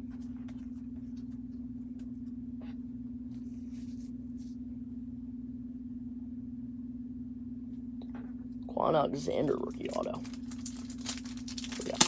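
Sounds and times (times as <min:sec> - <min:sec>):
steady electrical hum: 0:00.0 - 0:12.0
handling rustle: 0:09.8 - 0:12.0.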